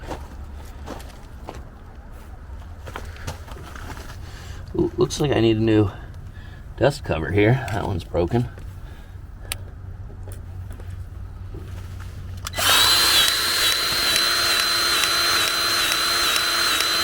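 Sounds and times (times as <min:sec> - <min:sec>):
electric power tool whining: 0:12.5 - 0:17.0.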